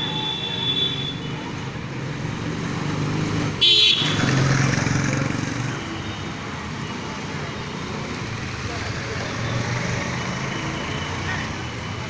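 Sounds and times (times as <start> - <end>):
road traffic: 0.0 - 12.0
vehicle passing: 2.0 - 5.8.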